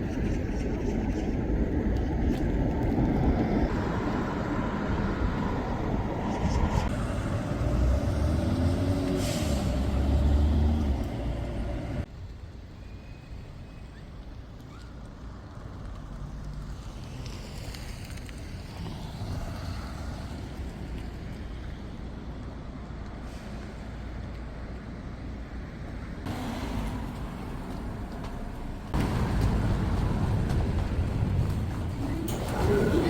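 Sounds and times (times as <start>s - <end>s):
traffic rumble: 0.0s - 33.0s
vehicle passing: 3.7s - 12.1s, 26.3s - 33.0s.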